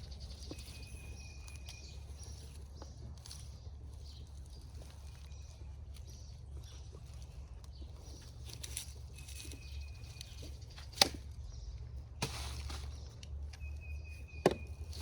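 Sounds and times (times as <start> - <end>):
rustling and scraping: 0.1 - 11.3, 12.0 - 13.7
sharp knocks: 14.4 - 14.7.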